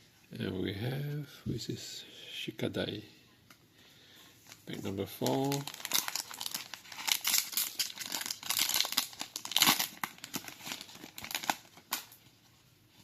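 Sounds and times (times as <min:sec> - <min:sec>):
foil pack tearing and crinkling: 0:05.2 - 0:12.2.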